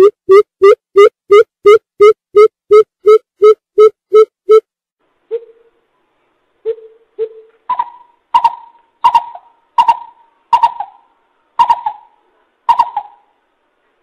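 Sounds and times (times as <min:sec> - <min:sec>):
coucal deep hooting calls: 0:06.7 - 0:13.4.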